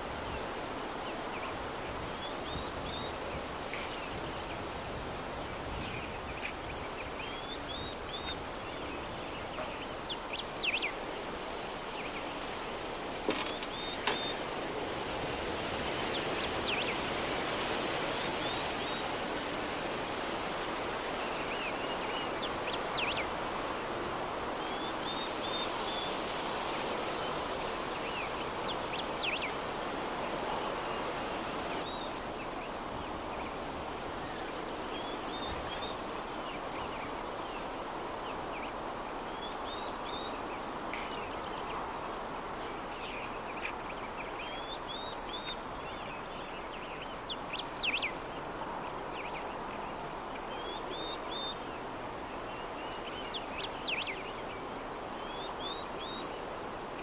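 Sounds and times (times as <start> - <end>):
small birds chirping: 5.6 - 14.6.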